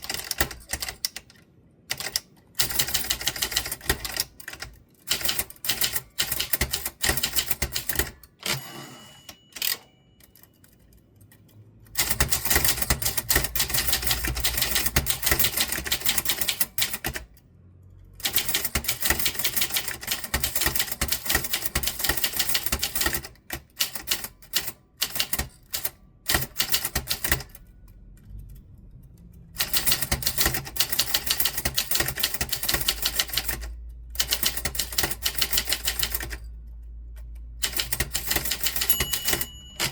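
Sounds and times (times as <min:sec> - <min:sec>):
typewriter keys striking: 0:00.0 - 0:01.3, 0:01.9 - 0:08.6, 0:11.9 - 0:17.3, 0:18.2 - 0:27.6, 0:29.6 - 0:36.5, 0:37.6 - 0:39.9
typewriter bell ringing: 0:05.1 - 0:10.8, 0:37.6 - 0:39.9.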